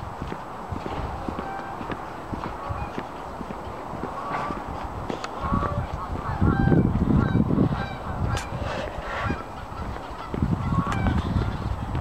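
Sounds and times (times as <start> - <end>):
low rumbling noise: 0.0 - 12.0.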